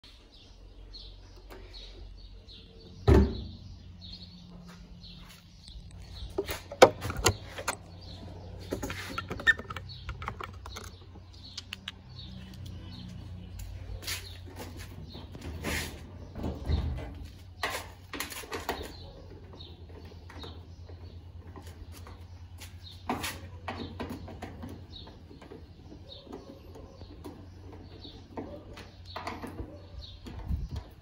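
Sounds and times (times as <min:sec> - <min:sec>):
bird chirping: 0:00.0 - 0:31.0
clicks and knocks of parts handled: 0:06.3 - 0:07.9, 0:08.6 - 0:12.8.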